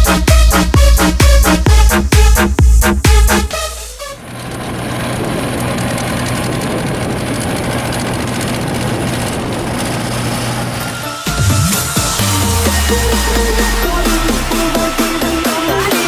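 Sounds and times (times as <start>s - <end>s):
electronic music: 0.0s - 4.2s, 11.0s - 16.0s
diesel engine running: 0.0s - 16.0s.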